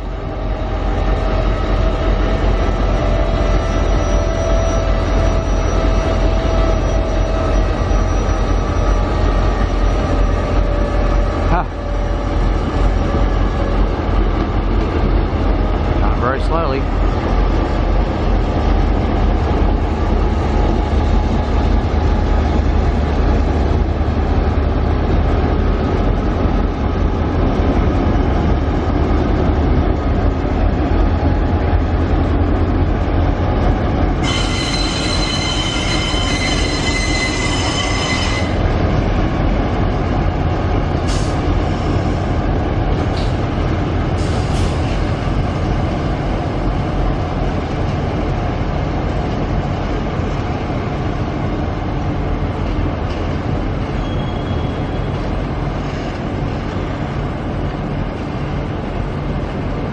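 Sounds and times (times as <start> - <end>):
locomotive engine rumble: 0.0 - 59.9
steel wheel squeal: 3.3 - 10.9, 34.2 - 38.6, 54.0 - 55.2.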